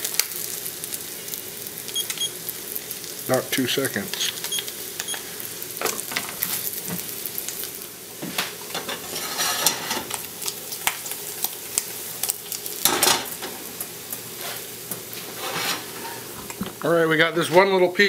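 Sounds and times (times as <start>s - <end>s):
meat sizzling in a frying pan: 0.0s - 18.0s
pan shifted on burner: 8.2s - 10.3s, 12.8s - 13.6s, 15.2s - 16.5s.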